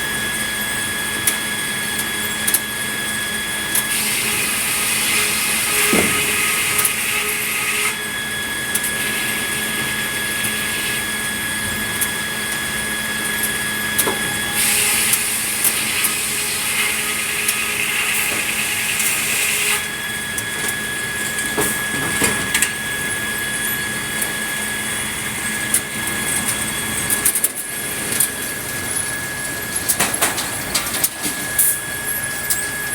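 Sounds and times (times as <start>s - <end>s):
sawmill saw whining: 0.0s - 32.9s
knocks and clatter: 29.9s - 31.6s.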